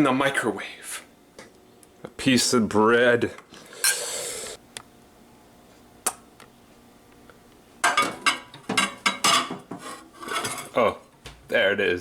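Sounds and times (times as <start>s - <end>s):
kitchenware rattling and clinking: 7.8s - 10.8s.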